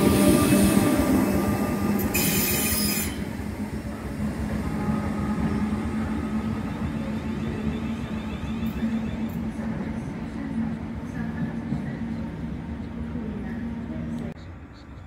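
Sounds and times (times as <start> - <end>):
wheel squeal: 2.0 - 3.3.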